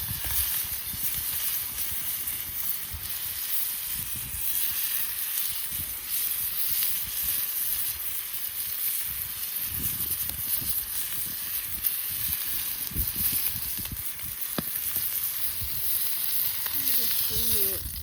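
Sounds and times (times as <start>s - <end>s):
campfire hissing and crackling: 0.0s - 18.0s
sharp pop of fire: 9.7s - 18.0s.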